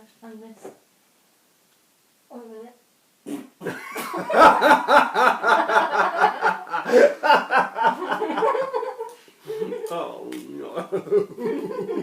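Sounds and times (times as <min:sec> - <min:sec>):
people laughing: 0:03.6 - 0:10.0, 0:10.7 - 0:12.0.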